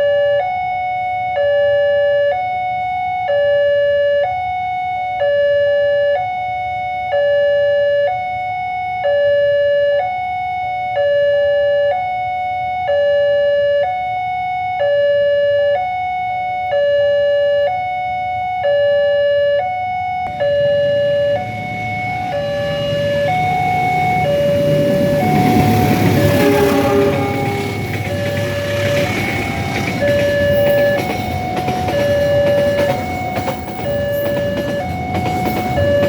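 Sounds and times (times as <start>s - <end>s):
level crossing two-tone alarm: 0.0s - 36.0s
rumbling noise: 20.2s - 36.0s.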